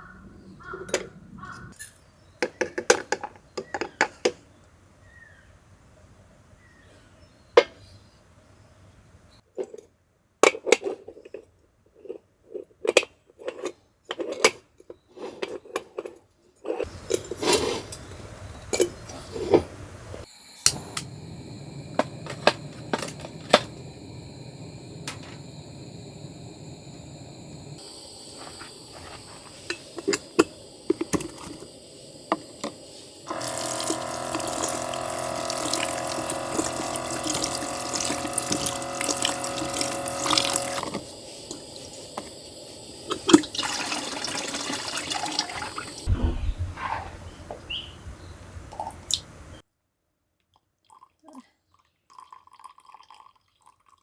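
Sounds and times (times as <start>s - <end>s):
running water rushing: 33.2s - 41.0s, 43.1s - 46.2s.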